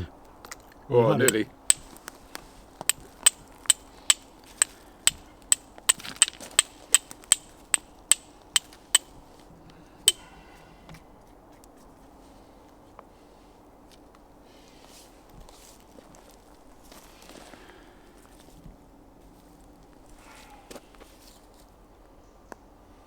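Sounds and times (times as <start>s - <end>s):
fire striker metallic clicks: 1.3s - 1.9s, 2.9s - 9.1s.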